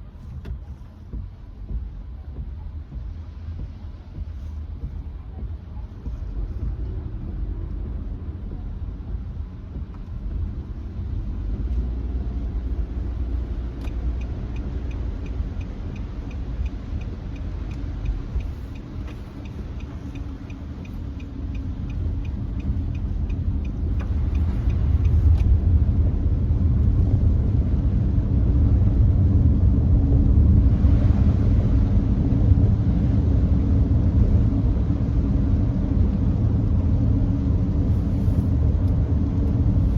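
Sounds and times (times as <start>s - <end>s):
regular ticking: 0.0s - 27.4s
road and tyre rumble in car: 0.0s - 39.9s.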